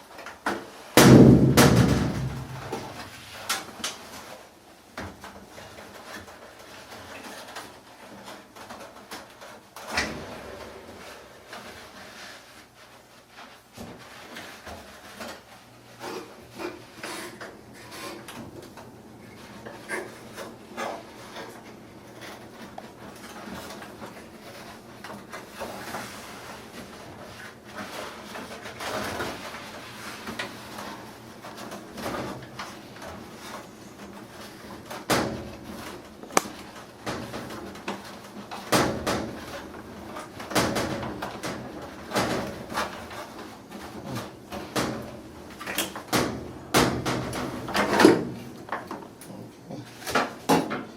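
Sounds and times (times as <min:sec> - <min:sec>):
dryer parts knocking and clattering: 0:00.0 - 0:12.1, 0:13.3 - 0:50.9
sharp knocks: 0:01.0 - 0:03.1.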